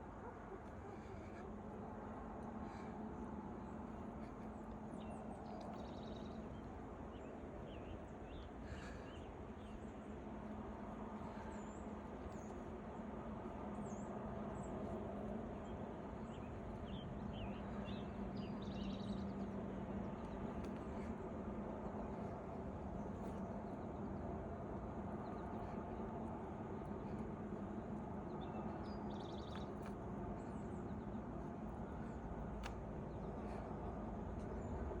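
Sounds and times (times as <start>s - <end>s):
small birds chirping: 13.8s - 35.0s.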